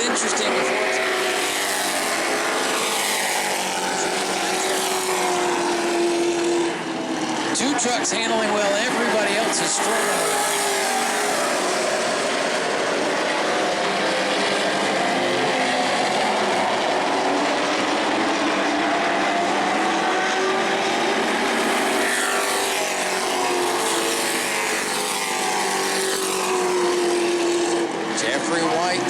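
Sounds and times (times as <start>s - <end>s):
racing truck engines: 0.0s - 29.0s
trucks passing by: 0.0s - 29.0s.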